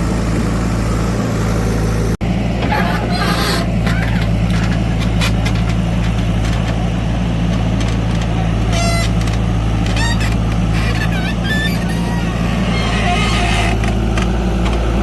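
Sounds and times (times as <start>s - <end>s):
heavy diesel engine droning: 0.0s - 15.0s
high-pitched squeals: 9.8s - 13.9s.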